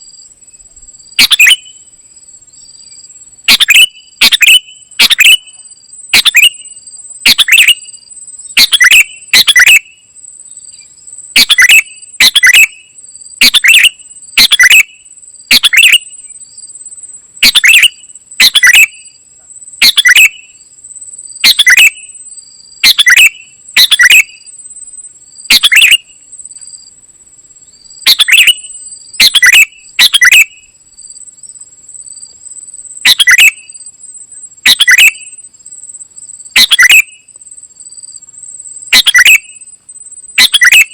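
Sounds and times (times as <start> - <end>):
high-pitched insect-like trill: 0.0 - 40.9
bulbul calling: 1.2 - 1.9, 2.7 - 10.0, 10.6 - 16.3, 17.4 - 19.2, 19.8 - 20.6, 21.4 - 22.2, 22.8 - 24.5, 25.5 - 26.2, 28.0 - 30.7, 33.0 - 33.8, 34.6 - 35.4, 36.6 - 37.3, 38.9 - 39.7, 40.4 - 40.9.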